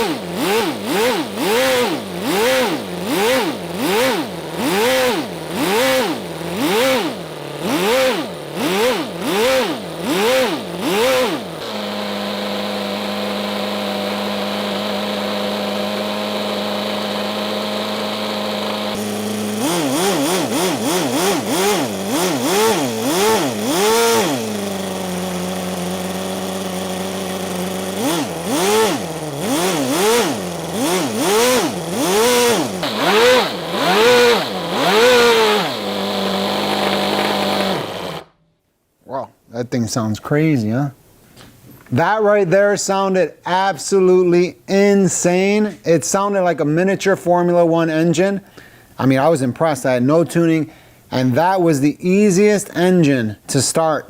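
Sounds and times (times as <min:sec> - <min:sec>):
model engine revving: 0:00.0 - 0:38.4.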